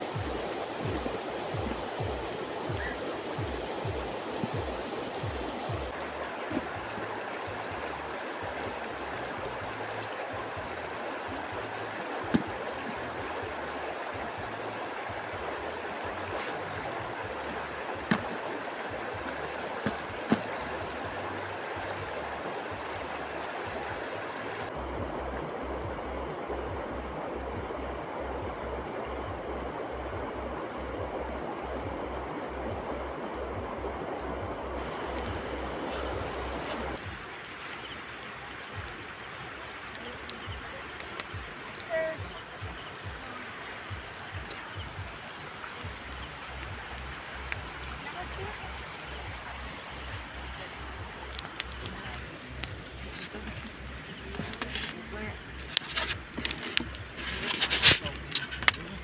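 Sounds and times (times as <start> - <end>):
river water rushing: 0.0 - 59.0
wood popping in fire: 48.6 - 59.0.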